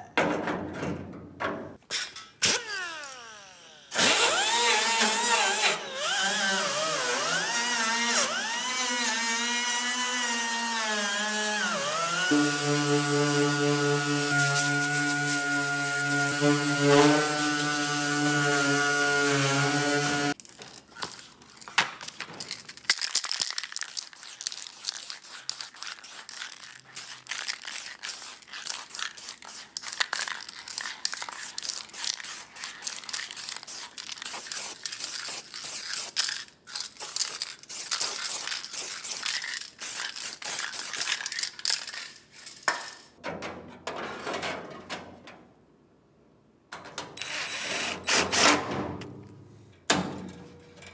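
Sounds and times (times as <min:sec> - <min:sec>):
electric drill running: 0:02.4 - 0:20.4.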